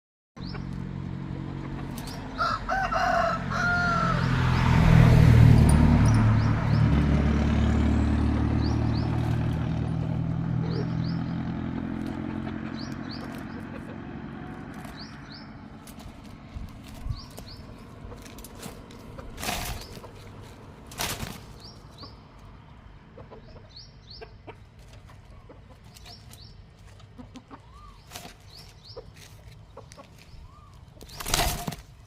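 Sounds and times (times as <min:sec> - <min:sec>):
low engine-like drone: 0:00.4 - 0:23.2
rooster crowing: 0:02.3 - 0:04.5.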